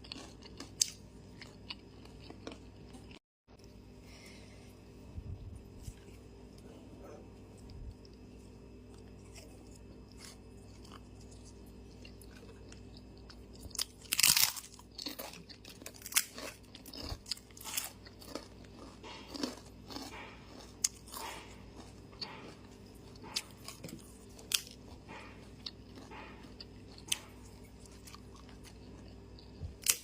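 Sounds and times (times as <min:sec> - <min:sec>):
person chewing with crunches: 0:00.0 - 0:03.7, 0:05.0 - 0:30.0
loud crunchy bite: 0:09.0 - 0:30.0.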